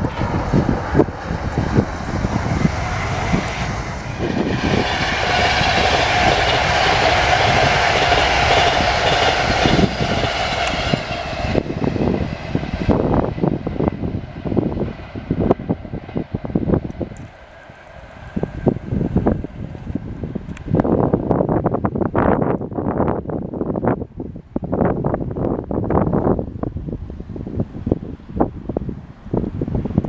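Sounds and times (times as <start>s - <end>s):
train passing: 0.0s - 22.3s
wind buffeting microphone: 0.0s - 30.0s.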